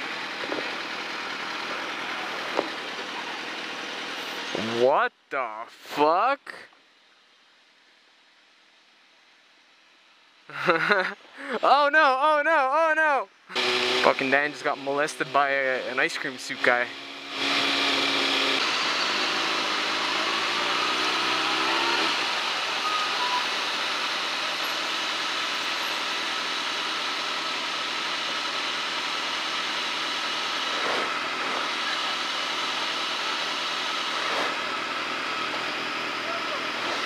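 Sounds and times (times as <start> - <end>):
motorcycle engine accelerating: 0.0 - 4.7, 13.5 - 37.0.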